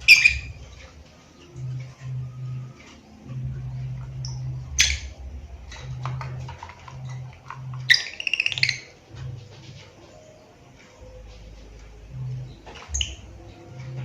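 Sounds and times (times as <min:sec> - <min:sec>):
bird shrill call: 0:00.0 - 0:00.6, 0:07.8 - 0:08.9
bird chirps: 0:00.0 - 0:00.8, 0:04.2 - 0:05.2, 0:07.6 - 0:09.0, 0:12.5 - 0:13.4.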